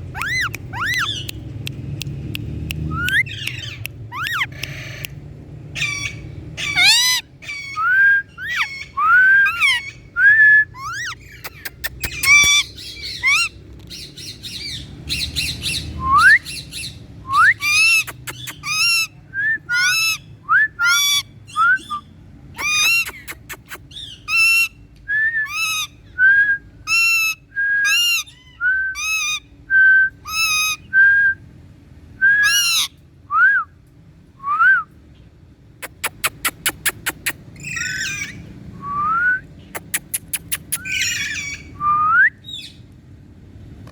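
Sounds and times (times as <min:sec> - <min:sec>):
parrot calling: 0:00.0 - 0:01.5, 0:02.8 - 0:24.8, 0:25.4 - 0:26.0, 0:26.9 - 0:29.5, 0:30.2 - 0:30.9, 0:32.3 - 0:33.0, 0:35.8 - 0:38.6, 0:39.8 - 0:41.8.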